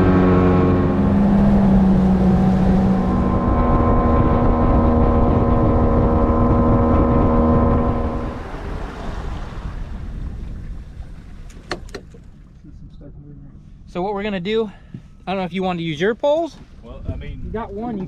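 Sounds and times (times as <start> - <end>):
boat motor running: 0.0 - 13.9
wind and water noise: 0.0 - 18.0.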